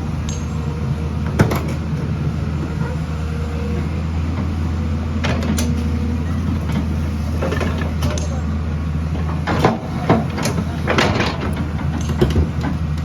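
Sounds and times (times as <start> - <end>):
diesel engine running: 0.0 - 13.0
metallic clanks: 0.2 - 0.8.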